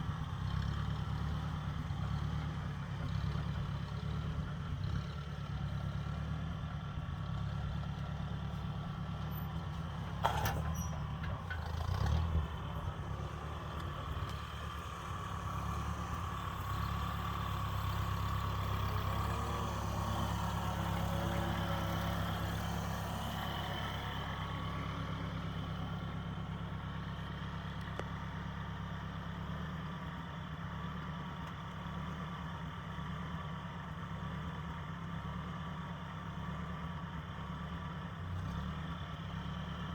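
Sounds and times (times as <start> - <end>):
tractor engine running: 0.0 - 39.9
metallic clatter: 9.8 - 12.8.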